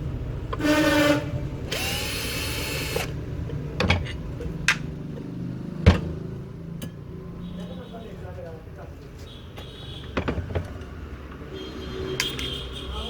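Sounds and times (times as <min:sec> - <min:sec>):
electric drill-driver running: 0:01.7 - 0:03.2.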